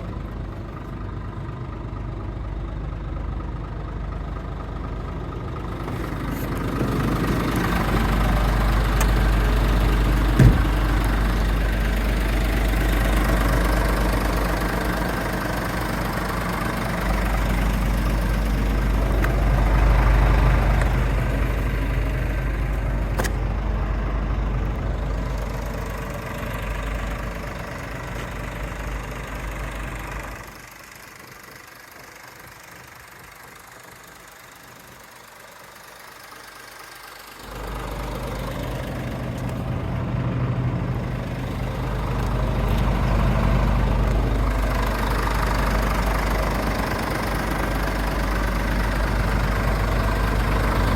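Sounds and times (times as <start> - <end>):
diesel truck engine running: 0.0 - 50.9
sharp knock: 10.4 - 10.9.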